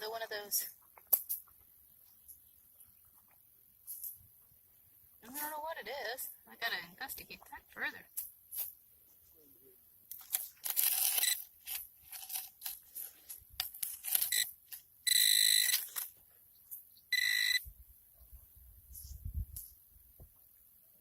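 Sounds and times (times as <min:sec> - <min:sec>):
metal detector beeps: 0:11.1 - 0:11.4, 0:14.2 - 0:16.0, 0:17.0 - 0:17.7.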